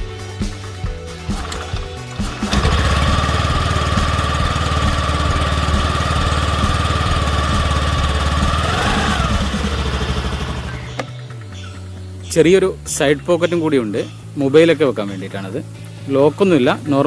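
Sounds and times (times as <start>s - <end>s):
scooter engine starting and idling: 1.2s - 11.4s.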